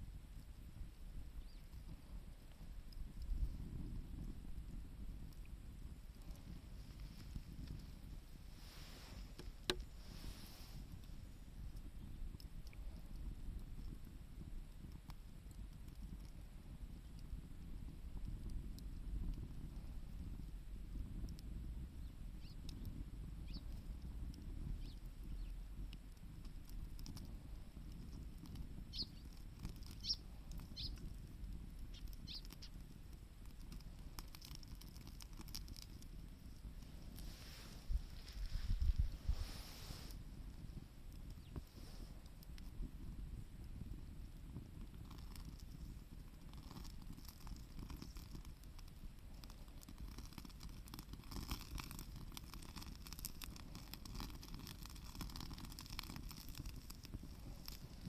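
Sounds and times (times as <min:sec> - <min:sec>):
campfire crackling: 0:00.0 - 0:58.0
sharp pops and clicks: 0:09.1 - 0:10.2, 0:22.4 - 0:39.2, 0:43.7 - 0:58.0
bird chirping: 0:23.4 - 0:23.6, 0:28.9 - 0:29.3, 0:29.9 - 0:30.2, 0:30.8 - 0:31.0, 0:31.9 - 0:32.7.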